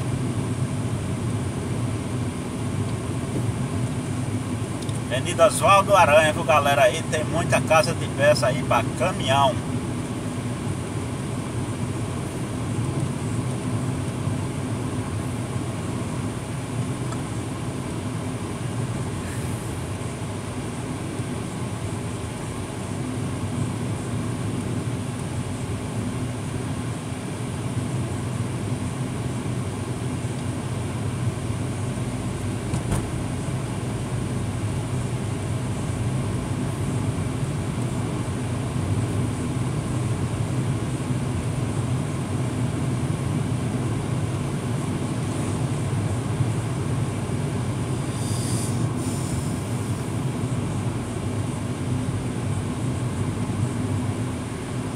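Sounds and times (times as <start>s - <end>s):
road noise: 1.6s - 20.2s, 31.0s - 41.1s.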